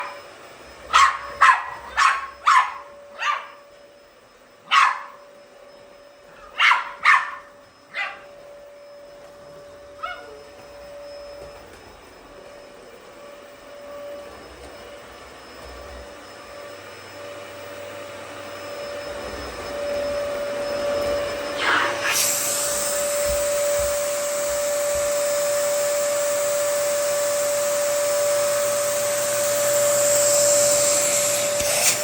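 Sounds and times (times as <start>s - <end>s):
dog barking: 0.9s - 3.6s, 4.7s - 5.2s, 6.4s - 8.3s, 10.0s - 10.4s.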